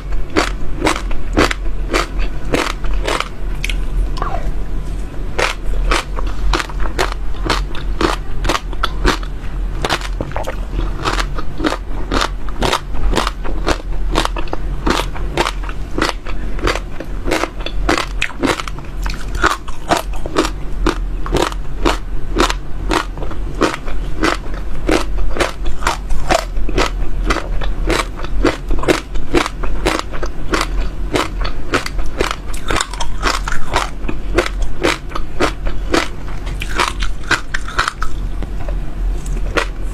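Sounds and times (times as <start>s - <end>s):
seeds crunching in mouth: 0.0s - 3.8s, 5.4s - 38.2s.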